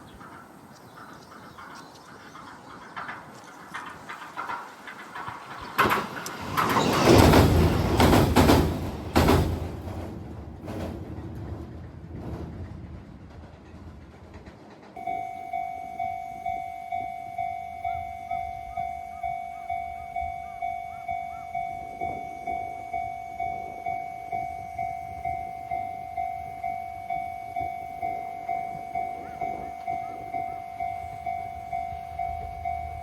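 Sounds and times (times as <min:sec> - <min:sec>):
train wheels clattering: 0:00.0 - 0:33.0
level-crossing warning bell: 0:15.0 - 0:33.0.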